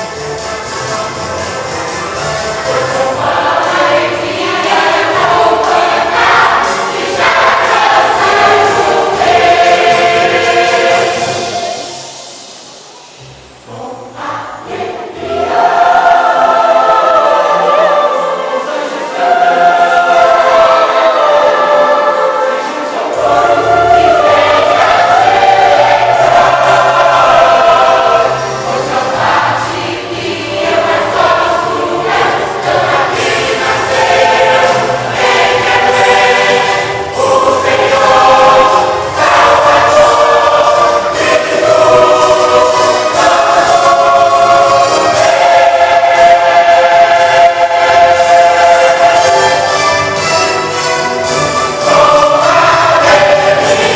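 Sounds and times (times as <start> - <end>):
church choir singing: 0.0 - 53.9.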